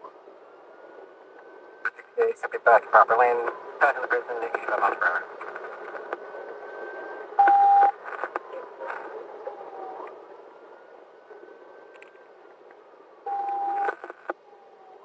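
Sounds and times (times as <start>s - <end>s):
road noise: 0.0s - 15.0s
radio beeps: 1.9s - 5.8s, 7.4s - 9.0s, 13.3s - 14.3s
police siren wailing: 6.2s - 15.0s.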